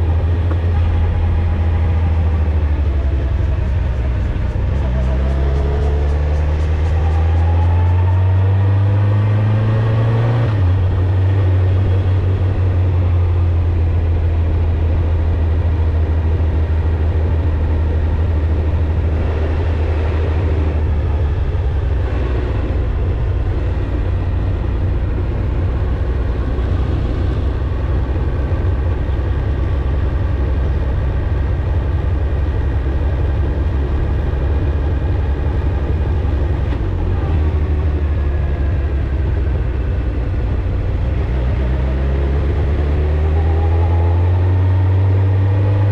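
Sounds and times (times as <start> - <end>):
motorcycle engine and exhaust: 0.0 - 45.9.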